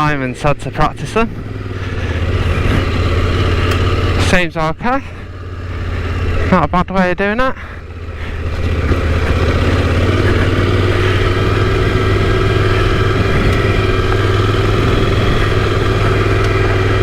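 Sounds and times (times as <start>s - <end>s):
motorcycle engine at raised revs: 0.0s - 17.0s.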